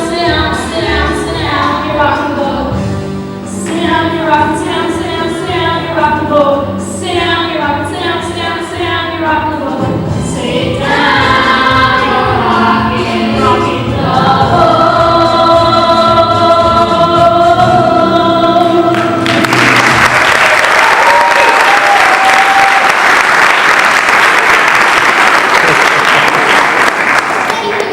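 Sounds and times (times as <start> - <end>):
choir singing: 9.7 - 19.9
audience applause: 18.9 - 27.9.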